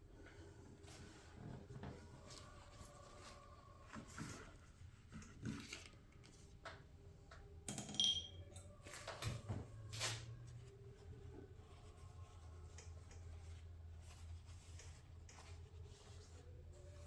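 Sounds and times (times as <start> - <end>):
ringing metal clink: 7.8 - 8.4.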